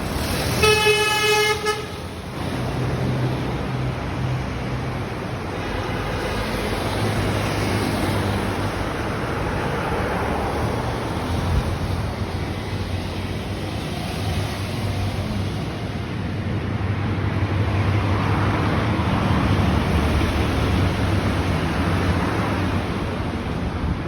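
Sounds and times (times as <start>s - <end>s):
motor traffic rumble: 0.0s - 24.0s.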